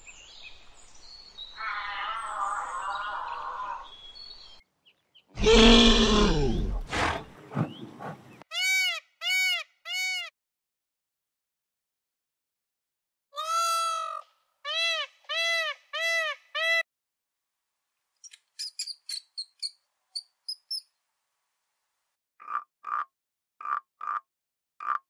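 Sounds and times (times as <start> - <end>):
peacock calling: 1.6 - 4.0, 8.5 - 10.3, 13.4 - 16.8
rodent squeaking: 18.2 - 20.8.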